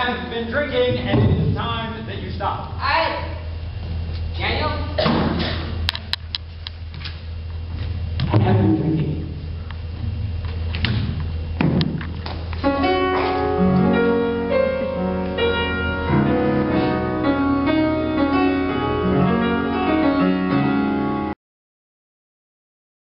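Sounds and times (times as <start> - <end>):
knocks: 10.8 - 12.2
piano music: 12.6 - 21.4.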